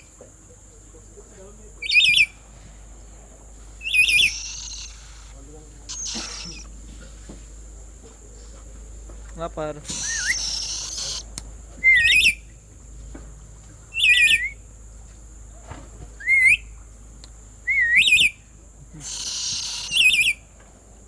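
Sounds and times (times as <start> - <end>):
parrot wavering whistles: 3.8 - 5.3, 5.9 - 6.7, 9.9 - 11.2, 11.8 - 12.4, 14.0 - 14.6, 16.2 - 16.6, 17.7 - 18.3, 19.0 - 20.4
harsh raspy screech: 4.0 - 6.7, 9.8 - 11.2, 19.0 - 20.2.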